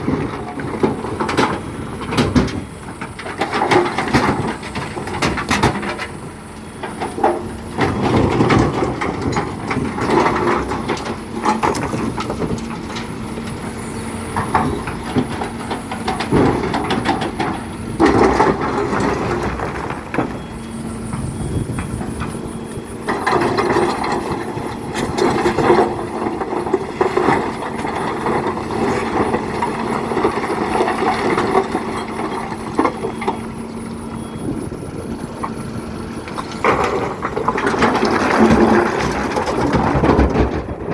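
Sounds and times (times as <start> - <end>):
diesel engine humming: 0.0 - 40.9.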